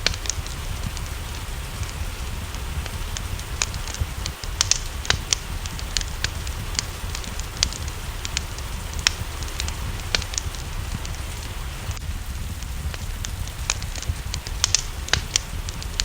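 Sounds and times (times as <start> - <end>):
low rumble: 0.0 - 16.0
rain hiss: 0.0 - 16.0
wood fire crackling and popping: 0.0 - 16.0.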